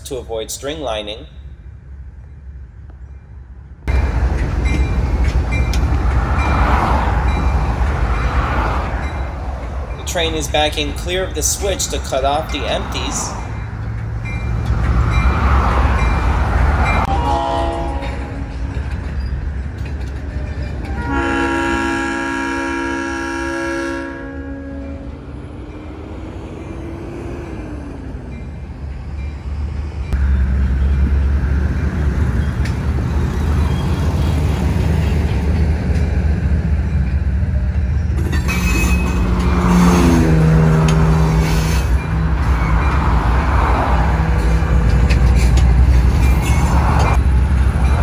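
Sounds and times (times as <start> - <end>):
diesel locomotive rumble: 0.0 - 48.0
tank cars rumbling past: 3.9 - 48.0
train horn chord: 17.1 - 18.6, 20.9 - 25.1.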